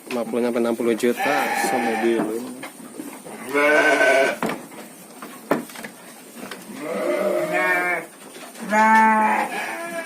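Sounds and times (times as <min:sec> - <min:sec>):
sheep bleating: 0:01.2 - 0:02.2, 0:03.4 - 0:04.4, 0:06.7 - 0:10.0.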